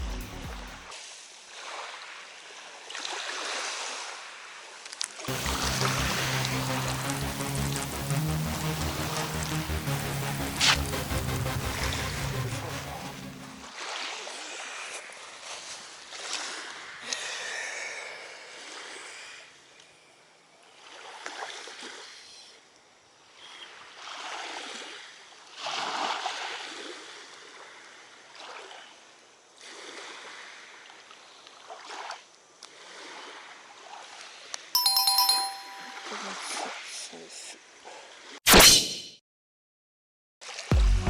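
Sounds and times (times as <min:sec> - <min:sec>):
lake water lapping: 0:01.1 - 0:07.1, 0:13.7 - 0:17.0, 0:29.6 - 0:34.2.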